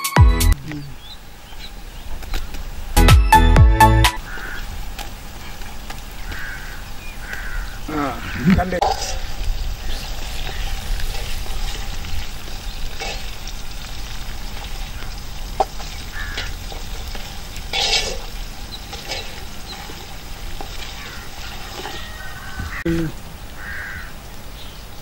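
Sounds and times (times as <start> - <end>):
food sizzling in hot oil: 8.7 - 22.8
ladle scraping pot: 8.8 - 9.5, 17.7 - 18.3, 18.9 - 20.0, 20.6 - 22.3.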